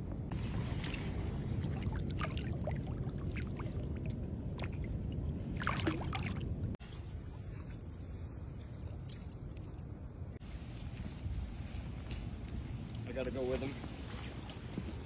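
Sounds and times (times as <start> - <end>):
water splashing: 0.4 - 6.8.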